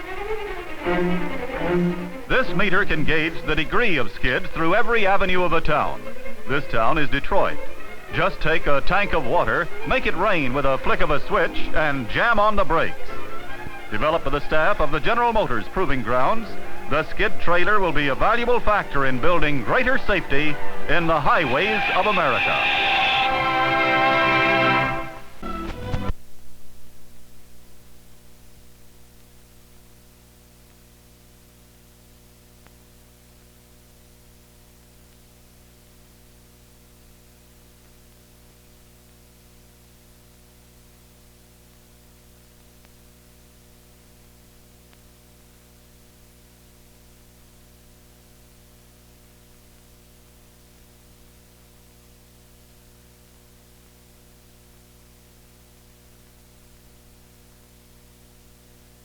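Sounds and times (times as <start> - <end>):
newsreel music: 0.0 - 26.1
electrical hum with hiss: 0.0 - 59.0.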